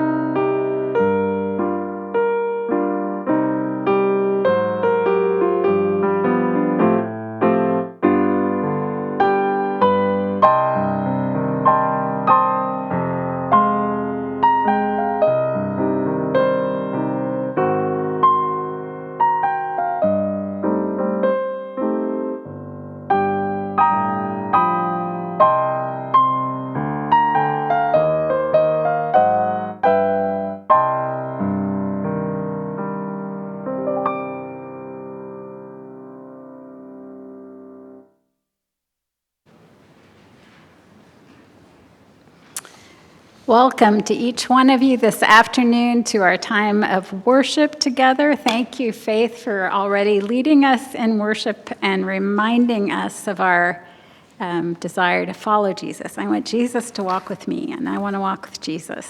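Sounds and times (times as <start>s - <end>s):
slow chordal piano piece: 0.0s - 38.2s.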